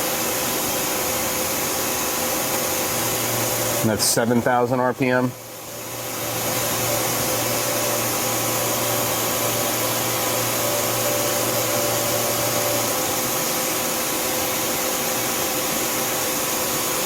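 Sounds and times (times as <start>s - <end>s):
machine whir: 0.0s - 17.0s
spindle low hum: 2.7s - 13.9s.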